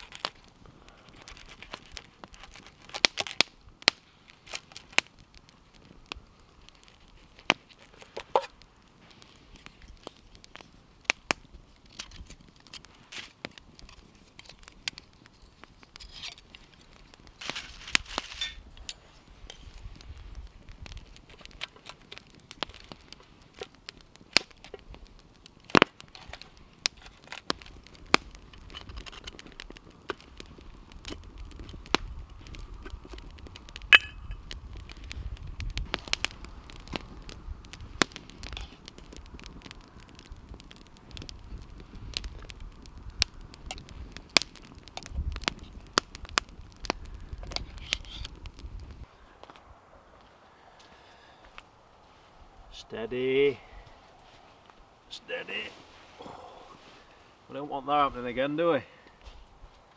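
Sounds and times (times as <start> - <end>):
campfire crackling: 0.0 - 59.9.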